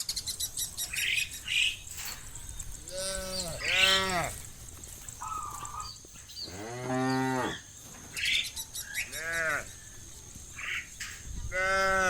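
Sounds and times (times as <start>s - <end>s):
cows mooing: 2.9s - 4.5s, 6.5s - 7.6s, 11.5s - 12.0s.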